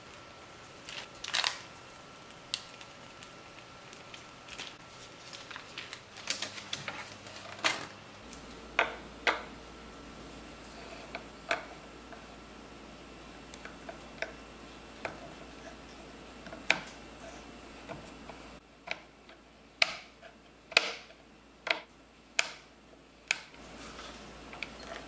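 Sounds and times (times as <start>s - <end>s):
batter piping clicks and rustles: 0.8s - 8.6s.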